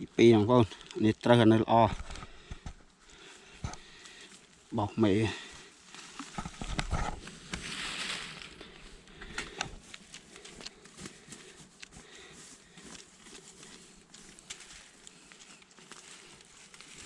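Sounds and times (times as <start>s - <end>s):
light rustling: 5.8s - 17.0s
soft rushing hiss: 7.2s - 9.1s.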